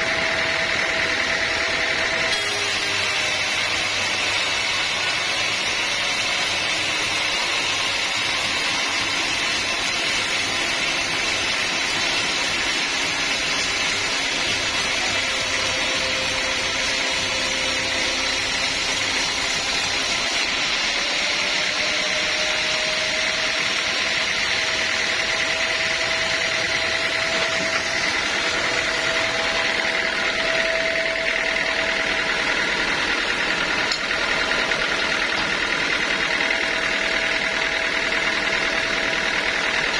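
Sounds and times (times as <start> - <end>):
sawmill machinery hissing: 0.0 - 39.9.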